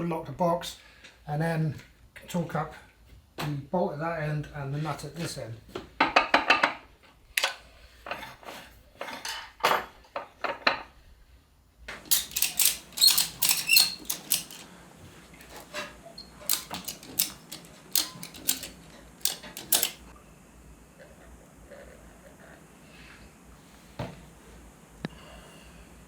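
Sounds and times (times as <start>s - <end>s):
metal tools and parts clinking: 12.0s - 14.7s, 15.4s - 20.1s.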